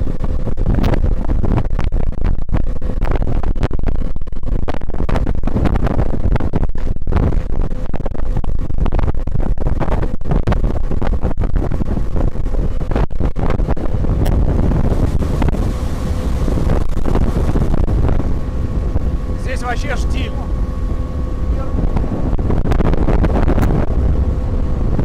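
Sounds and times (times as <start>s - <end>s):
wind buffeting microphone: 0.0s - 25.0s
outboard motor droning: 11.8s - 25.0s.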